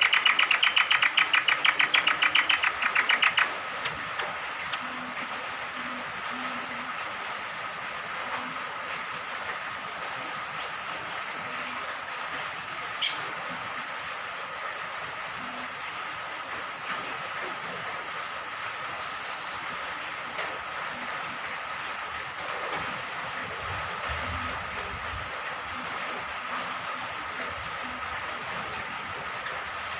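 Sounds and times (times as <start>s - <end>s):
bird chattering trill: 0.0s - 3.6s, 13.0s - 13.2s
rain falling: 0.0s - 29.9s.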